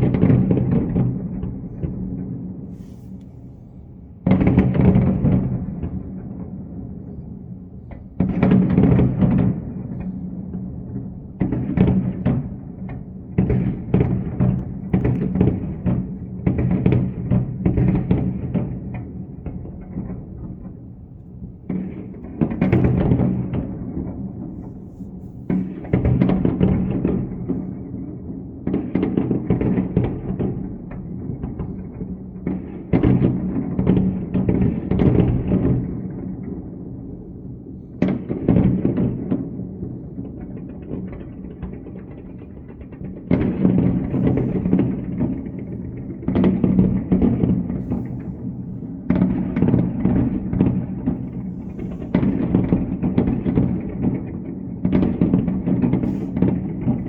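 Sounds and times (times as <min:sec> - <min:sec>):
rapid explosions and crackles: 0:00.0 - 0:57.0
loud blasts: 0:43.2 - 0:57.0.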